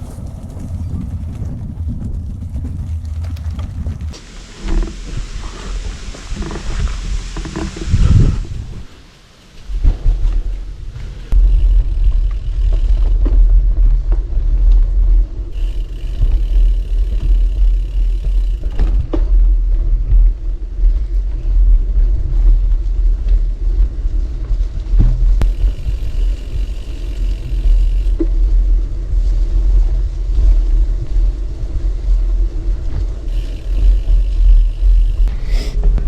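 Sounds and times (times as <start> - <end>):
bike clicks and rattles: 0.0 - 7.9, 9.8 - 23.4, 24.8 - 29.6, 30.3 - 36.0
tyres rolling over gravel: 0.0 - 8.0, 15.5 - 19.9, 25.2 - 30.0
wind on microphone: 0.0 - 9.0, 9.6 - 36.0.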